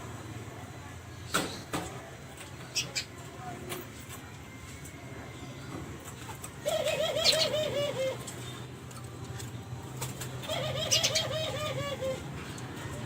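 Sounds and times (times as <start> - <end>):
dove cooing: 6.6 - 8.4, 10.4 - 12.4.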